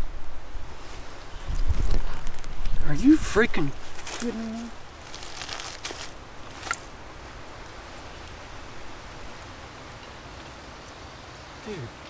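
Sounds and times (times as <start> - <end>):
wind in a wood: 0.0 - 11.6.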